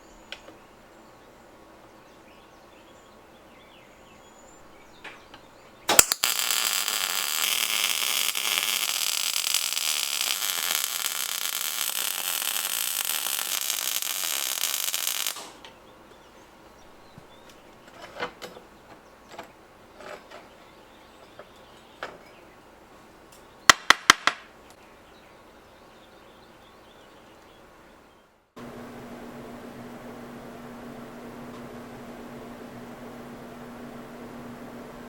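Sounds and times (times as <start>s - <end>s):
electric arc welding sizzle: 5.9s - 15.6s.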